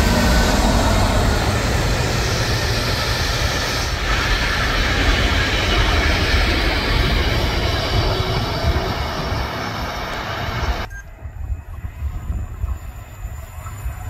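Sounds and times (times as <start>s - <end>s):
train wheels rumbling past: 0.0s - 10.9s.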